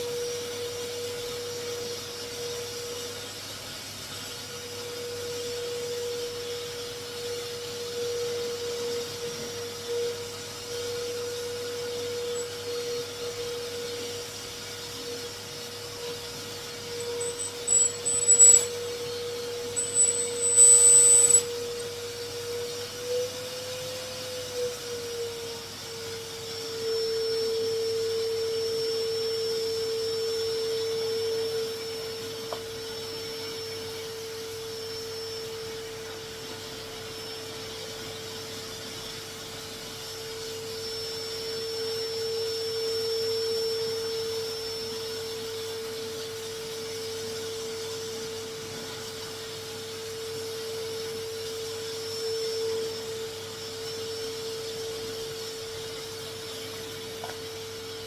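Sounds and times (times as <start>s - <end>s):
vacuum cleaner whining: 0.0s - 58.0s.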